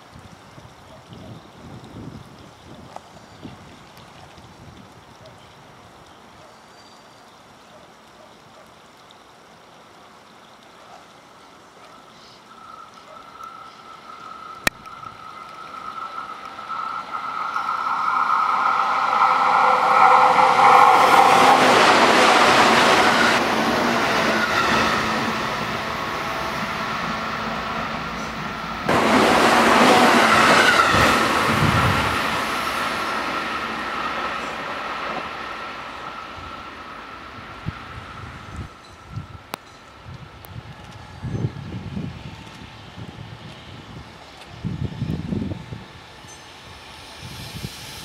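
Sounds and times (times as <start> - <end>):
train wheels on rails: 12.5 - 48.0.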